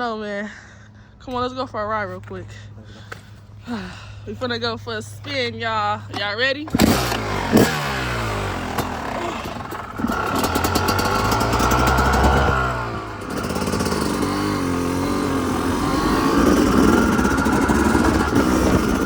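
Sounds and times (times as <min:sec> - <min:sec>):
two-stroke dirt bike engine: 0:06.1 - 0:19.0.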